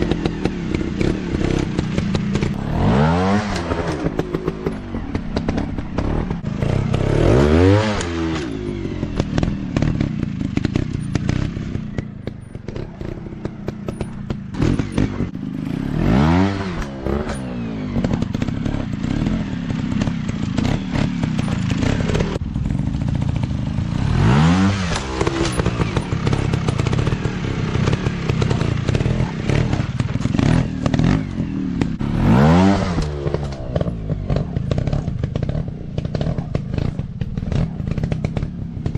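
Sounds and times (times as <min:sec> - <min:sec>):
dirt bike revving: 0:00.0 - 0:38.9
drone of dirt bike engines: 0:00.0 - 0:38.9.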